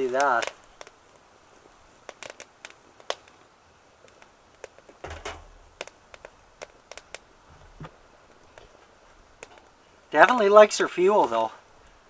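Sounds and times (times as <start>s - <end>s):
wood crackling in stove: 0.0s - 12.0s
low thump and rumble: 5.0s - 5.8s.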